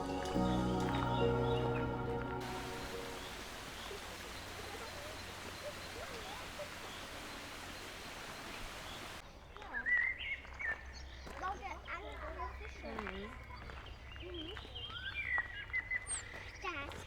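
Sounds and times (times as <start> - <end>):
outdoor ambient hiss: 0.0 - 9.2
faint bird chirps: 2.4 - 11.2.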